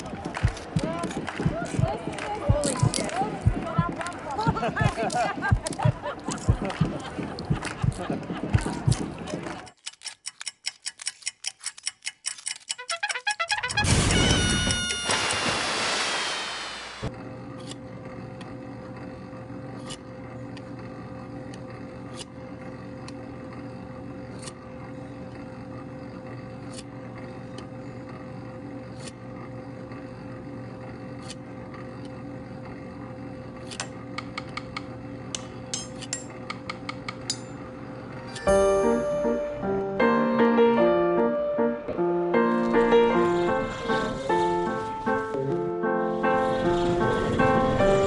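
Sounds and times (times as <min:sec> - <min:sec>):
motor hum: 0:00.0 - 0:09.8, 0:13.5 - 0:48.0
sharp clicks: 0:09.6 - 0:13.9.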